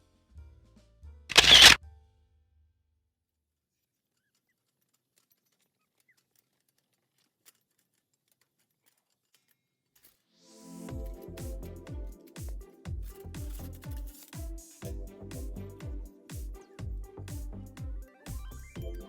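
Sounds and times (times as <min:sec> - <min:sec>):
camera shutter: 0:01.3 - 0:01.8.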